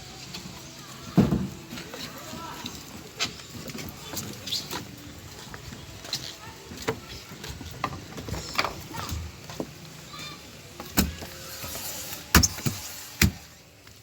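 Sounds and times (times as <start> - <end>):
scraping hiss: 10.8 - 13.6.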